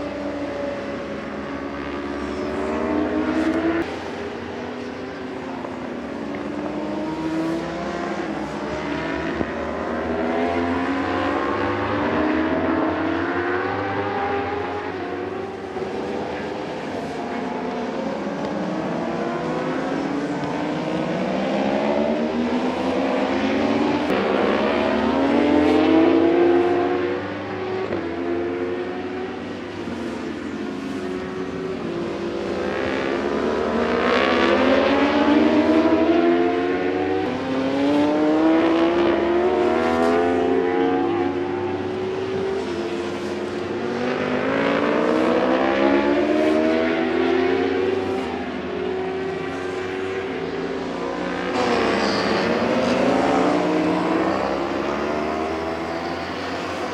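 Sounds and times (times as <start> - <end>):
racing motorcycles at full throttle: 0.0 - 56.9
motorbike engines at high revs: 51.4 - 56.9.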